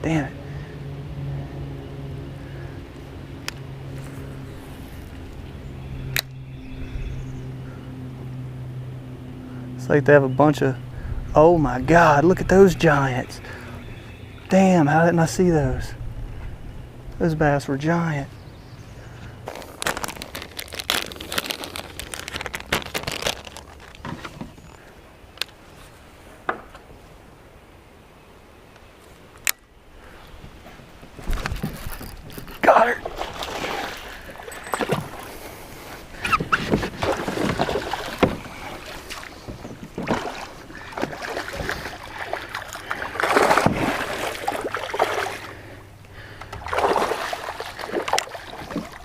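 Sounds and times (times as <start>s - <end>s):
low engine drone: 0.0s - 26.4s, 29.4s - 49.0s
crinkling rustle: 19.2s - 26.3s, 30.7s - 32.7s.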